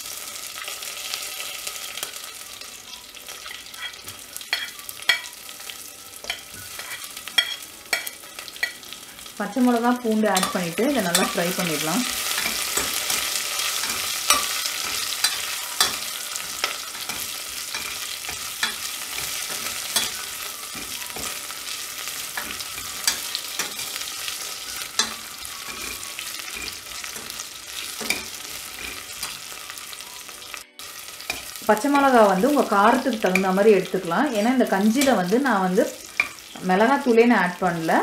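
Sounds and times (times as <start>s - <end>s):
food sizzling in hot oil: 0.0s - 38.0s.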